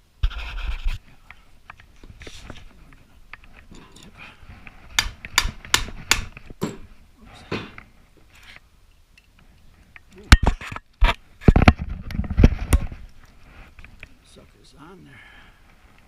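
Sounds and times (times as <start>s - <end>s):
metal tools clinking and scraping: 1.7s - 4.4s.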